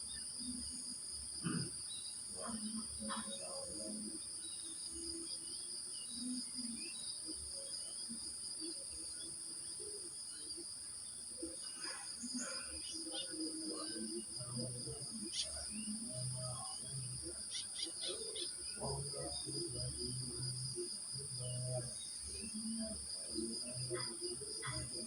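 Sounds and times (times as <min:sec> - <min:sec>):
crickets chirping: 0:00.0 - 0:25.0
faint low-pitched sounds: 0:00.0 - 0:25.0
bird chirps and calls: 0:17.5 - 0:18.6.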